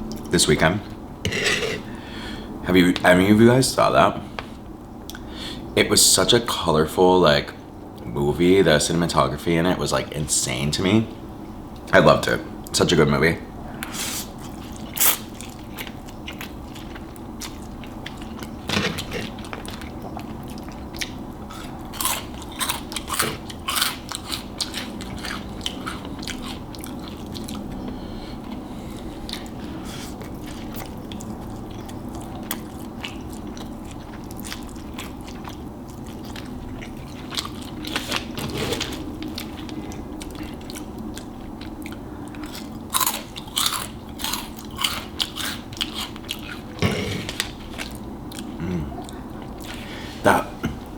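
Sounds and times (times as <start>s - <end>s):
chewing with crisp crunches: 13.8s - 50.0s.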